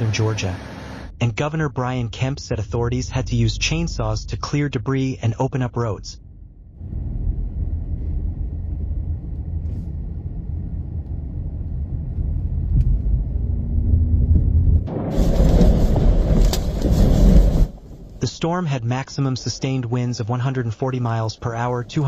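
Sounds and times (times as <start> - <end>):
wind rumble on microphone: 6.7 - 18.2
rushing wind and rain: 10.2 - 18.2.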